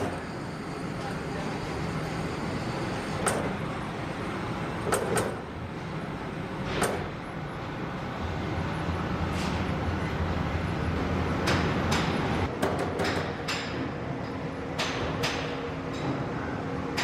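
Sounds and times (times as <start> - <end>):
low machinery hum: 0.0 - 12.5.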